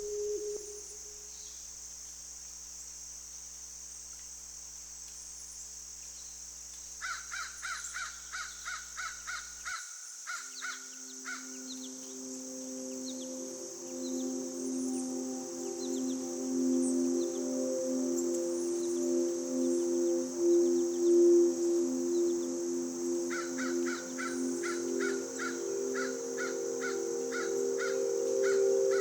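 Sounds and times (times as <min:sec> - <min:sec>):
high-pitched forest ambience: 0:00.0 - 0:29.0
crow cawing: 0:07.0 - 0:11.5, 0:23.3 - 0:29.0.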